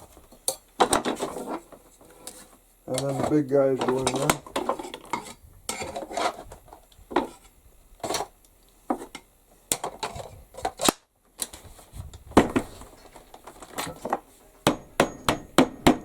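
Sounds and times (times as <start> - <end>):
wooden wedges knocking together: 13.5 - 16.0.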